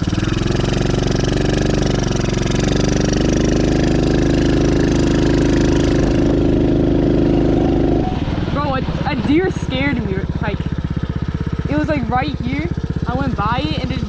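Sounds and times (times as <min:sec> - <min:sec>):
dirt bike engine: 0:00.0 - 0:14.0.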